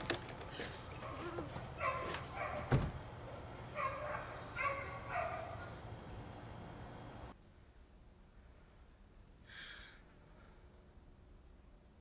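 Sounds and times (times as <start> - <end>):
wooden door opening: 2.0 - 3.0.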